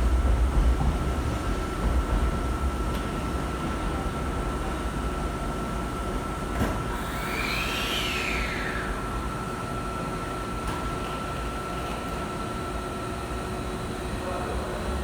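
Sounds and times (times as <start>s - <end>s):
train whine sweeping up: 6.8s - 10.3s.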